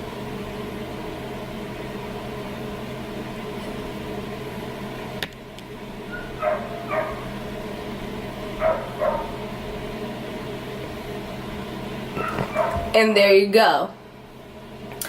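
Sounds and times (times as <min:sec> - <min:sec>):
steady hum: 0:00.0 - 0:15.0
dog barking: 0:06.1 - 0:07.3, 0:08.6 - 0:09.4, 0:12.2 - 0:13.0.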